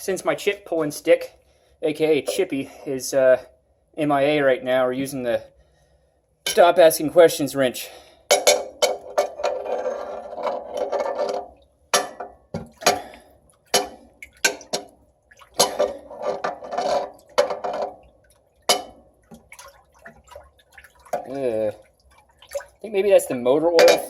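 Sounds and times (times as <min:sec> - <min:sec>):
liquid sloshing and splashing: 0:08.9 - 0:23.0.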